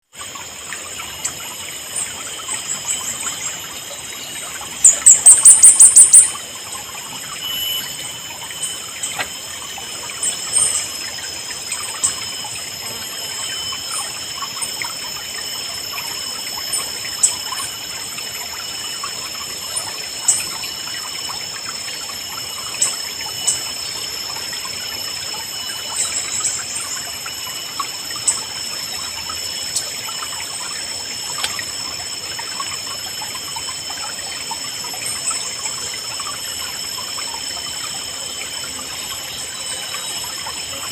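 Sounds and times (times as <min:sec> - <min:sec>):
steady high-pitched tone: 0:00.2 - 0:40.9
bird chirps: 0:02.7 - 0:06.4, 0:07.3 - 0:09.3.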